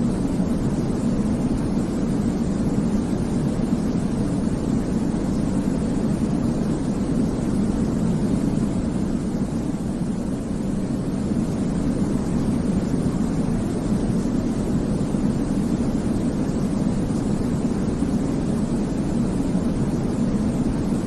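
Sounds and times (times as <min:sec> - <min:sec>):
deep white noise: 0:00.0 - 0:21.0.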